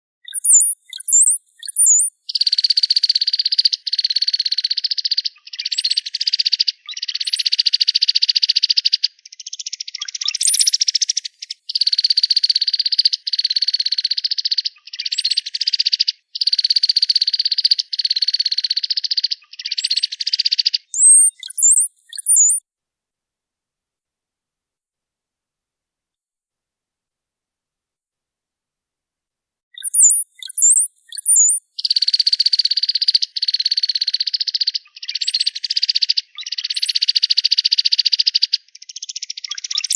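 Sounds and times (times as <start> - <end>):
bird high slurred whistles: 0.2 - 3.0, 9.9 - 13.2, 19.4 - 22.6, 29.8 - 37.5, 39.4 - 39.9.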